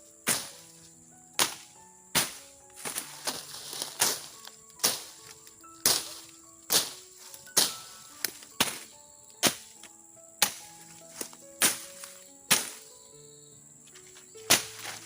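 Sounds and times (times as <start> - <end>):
sharp strikes: 0.2 - 0.6, 1.4 - 5.2, 5.8 - 7.0, 7.6 - 9.8, 10.4 - 10.7, 11.6 - 12.9, 14.5 - 15.0.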